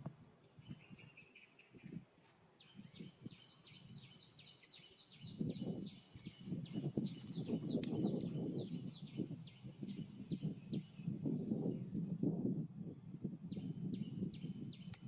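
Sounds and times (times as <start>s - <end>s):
bird chirping: 0.4s - 2.0s, 2.6s - 12.0s, 13.5s - 15.0s
crackling rustle: 1.6s - 2.7s.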